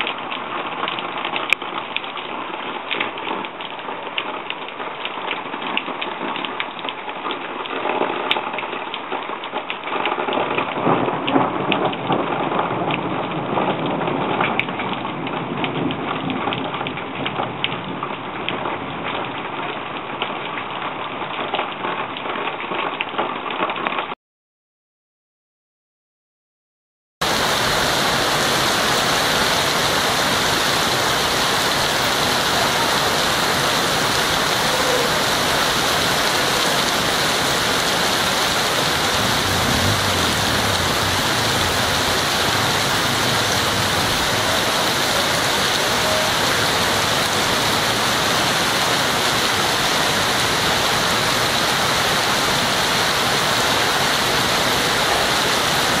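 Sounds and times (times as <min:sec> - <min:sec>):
heavy rain falling: 0:00.0 - 0:24.2, 0:27.2 - 0:56.0.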